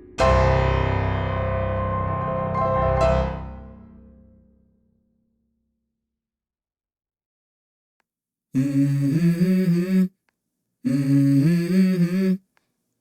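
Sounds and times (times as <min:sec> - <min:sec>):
hummed vocal phrase: 0:08.6 - 0:10.2, 0:10.8 - 0:12.5.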